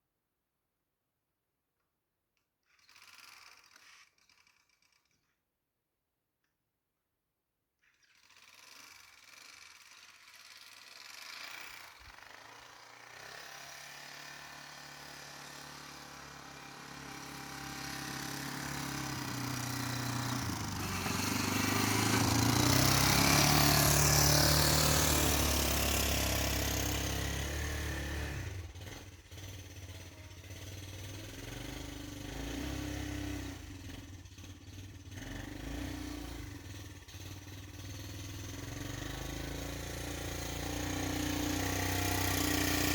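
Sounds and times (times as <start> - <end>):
atv engine running: 10.7 - 42.9.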